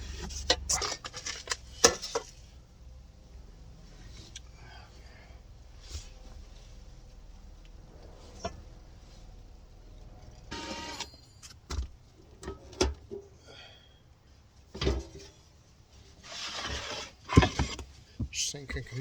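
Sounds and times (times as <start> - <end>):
scraping and rubbing: 16.0 - 18.0.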